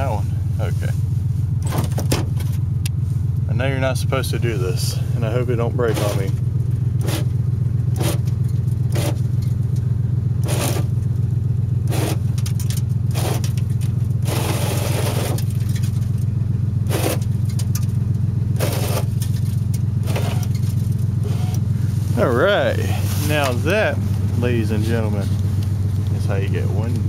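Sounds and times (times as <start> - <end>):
truck engine idling: 0.0 - 27.0
scraping ice off windshield: 5.8 - 6.4, 7.0 - 7.3, 8.0 - 8.3, 8.9 - 9.2, 10.4 - 10.9, 11.9 - 16.0, 16.9 - 17.6, 18.6 - 23.8.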